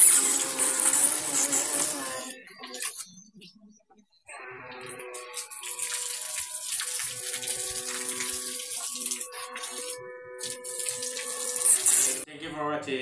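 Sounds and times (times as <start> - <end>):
water running and splashing: 4.8 - 12.3.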